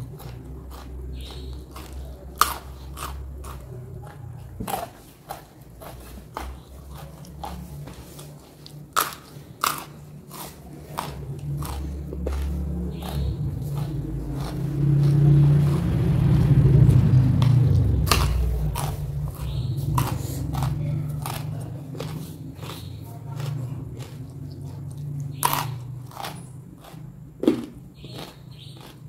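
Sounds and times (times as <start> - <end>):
person chewing and crunching food: 0.0 - 29.0.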